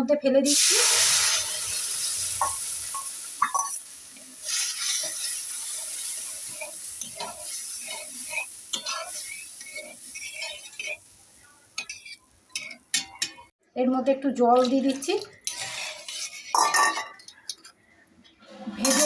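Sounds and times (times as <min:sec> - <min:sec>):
food sizzling in oil: 0:00.4 - 0:13.6, 0:14.4 - 0:17.5
spoon scraping a pan: 0:02.4 - 0:13.5, 0:14.6 - 0:18.0, 0:18.8 - 0:19.0.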